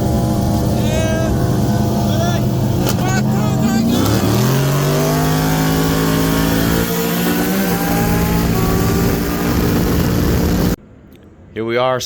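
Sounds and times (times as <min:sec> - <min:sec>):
car engine accelerating: 0:00.0 - 0:10.8.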